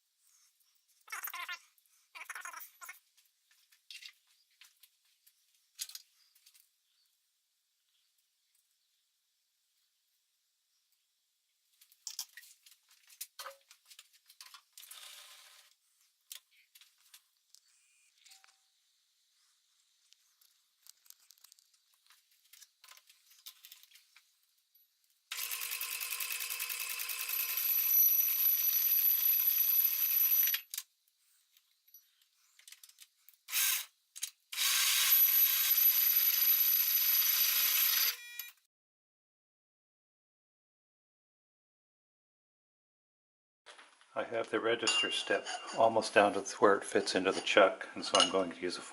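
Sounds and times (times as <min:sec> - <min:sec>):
metal tools clicking and clinking: 0:47.4 - 0:48.4.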